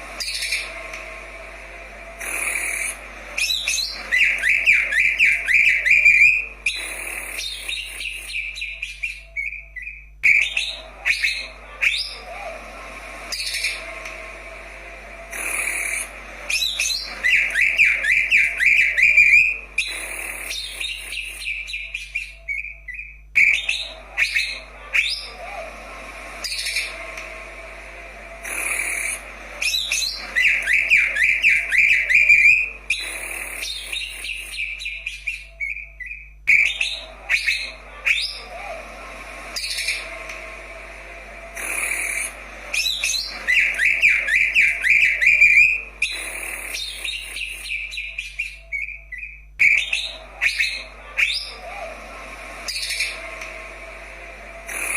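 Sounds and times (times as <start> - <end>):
bird singing whistled notes and trills: 2.3 - 12.4, 15.4 - 25.5, 28.6 - 38.7, 42.8 - 51.8.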